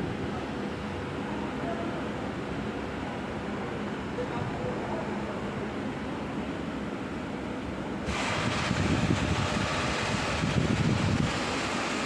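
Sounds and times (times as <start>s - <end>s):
loud hiss: 8.0s - 12.0s.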